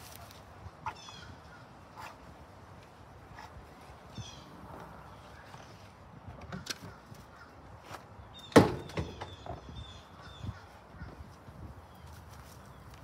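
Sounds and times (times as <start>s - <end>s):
knocks and clicks handling mower: 5.6s - 7.3s.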